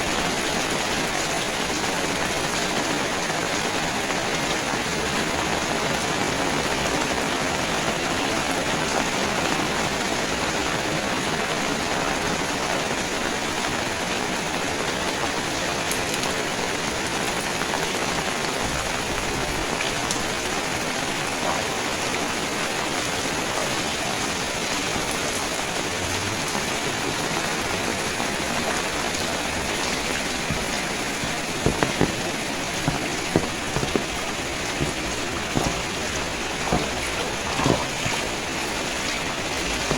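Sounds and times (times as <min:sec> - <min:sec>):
steady rain falling: 0:00.0 - 0:39.9
sharp taps: 0:30.5 - 0:38.2.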